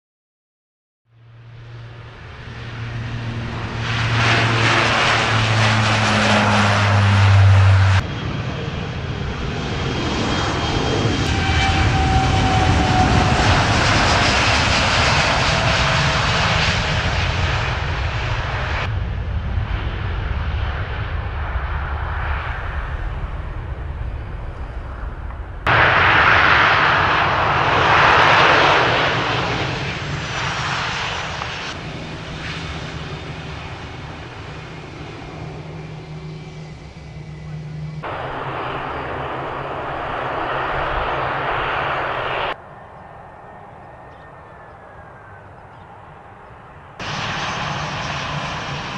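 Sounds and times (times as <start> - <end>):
airliner engines running: 1.1 - 48.9
faint descending whine: 35.5 - 48.3.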